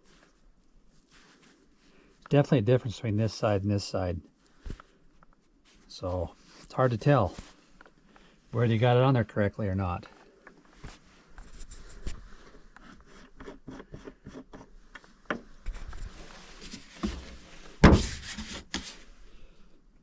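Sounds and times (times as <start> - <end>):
plastic scraping and rubbing: 12.8 - 19.0
knock: 17.8 - 18.2.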